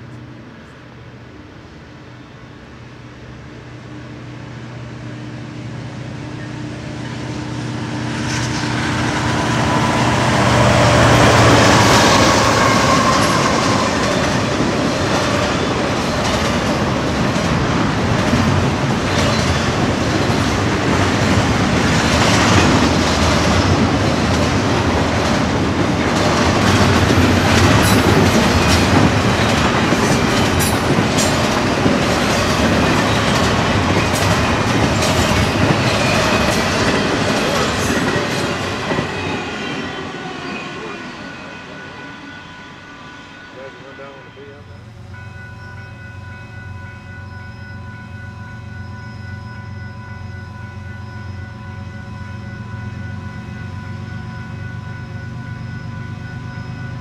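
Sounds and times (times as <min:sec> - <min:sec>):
diesel locomotive engine drone: 0:00.0 - 0:57.0
wheels rumbling on rail: 0:00.0 - 0:57.0.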